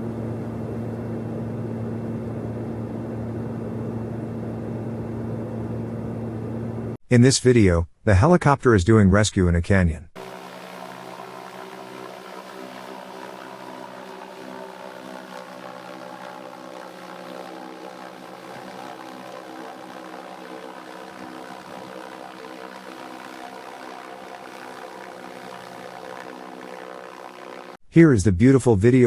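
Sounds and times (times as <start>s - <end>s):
helicopter hovering: 10.2s - 27.8s.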